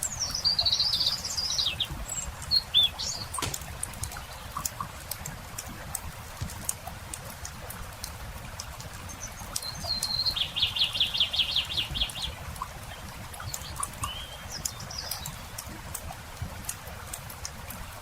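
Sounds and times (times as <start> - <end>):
songbird trilling and chirping: 0.0 - 3.6, 9.1 - 12.4, 13.4 - 15.5
campfire crackling and popping: 1.7 - 9.7.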